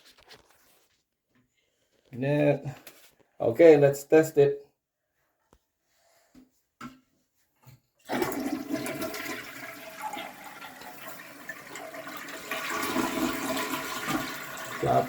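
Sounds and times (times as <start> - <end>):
toilet flushing: 8.0 - 15.0.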